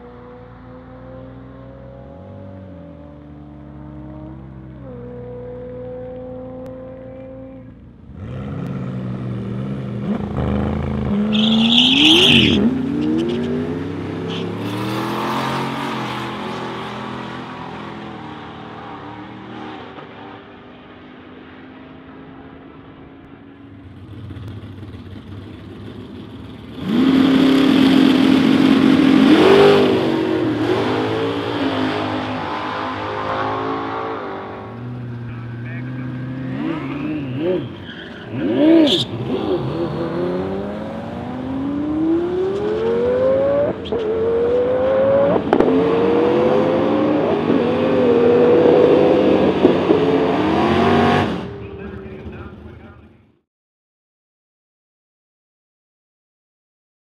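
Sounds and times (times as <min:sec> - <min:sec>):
car engines revving and accelerating: 0:00.0 - 0:53.2
loud engine at high revs: 0:26.8 - 0:52.2.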